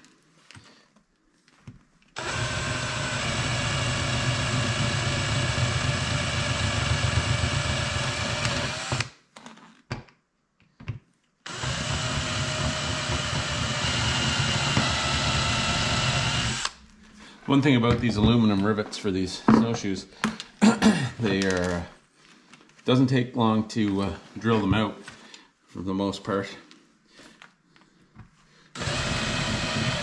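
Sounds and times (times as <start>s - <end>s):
power drill drilling metal: 2.2s - 9.1s, 11.5s - 16.9s, 28.8s - 30.0s.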